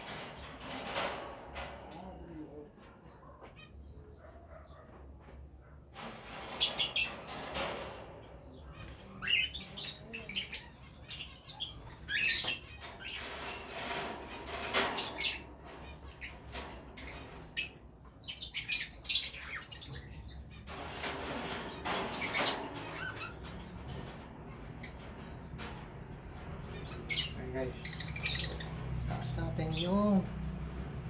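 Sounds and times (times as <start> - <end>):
feed cups knocking on wire cages: 0.0 - 2.2
caged birds chirping and squawking: 0.0 - 31.0.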